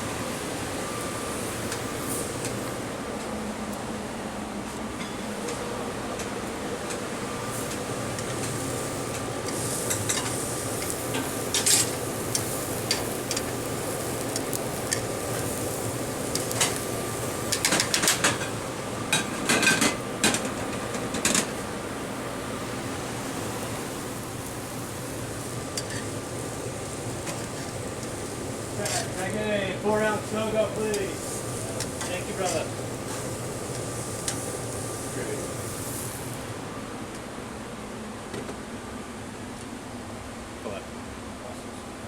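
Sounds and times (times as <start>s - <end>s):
steady background hum: 0.0s - 42.0s.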